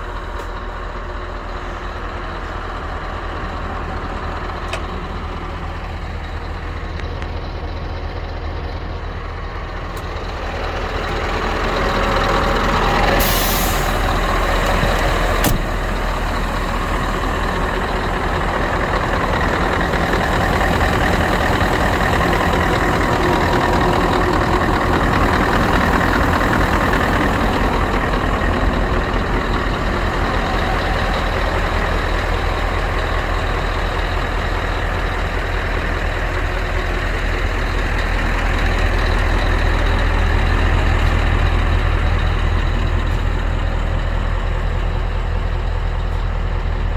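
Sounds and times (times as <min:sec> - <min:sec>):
truck diesel engine running: 0:00.0 - 0:46.9
hiss of released air: 0:13.2 - 0:14.0.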